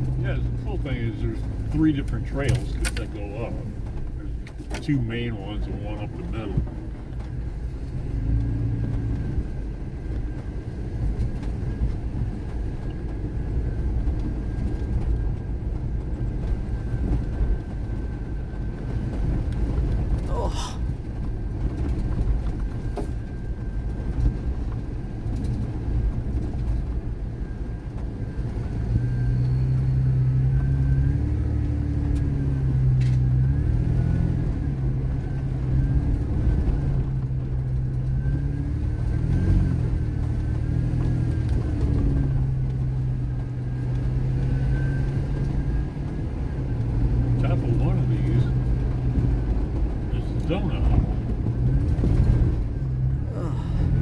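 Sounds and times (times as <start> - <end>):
off-road vehicle engine rumble: 0.0 - 54.0
vehicle body bouncing: 1.5 - 4.9.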